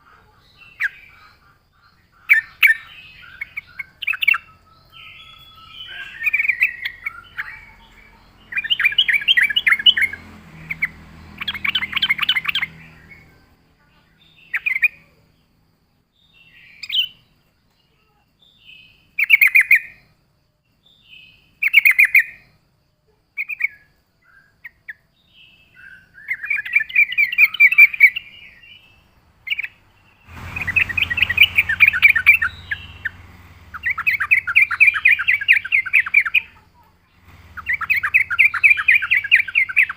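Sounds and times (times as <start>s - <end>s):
bird bubbly chattering song: 0.0s - 13.3s, 25.8s - 36.6s, 37.3s - 39.9s.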